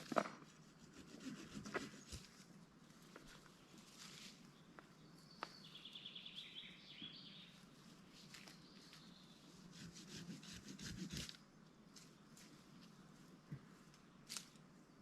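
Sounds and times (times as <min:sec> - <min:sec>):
songbird trill: 0:03.4 - 0:09.8.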